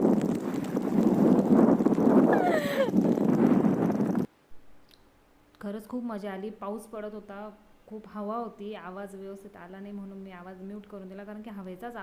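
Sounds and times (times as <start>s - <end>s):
rain: 0.0s - 4.3s
wind buffeting microphone: 0.0s - 4.3s.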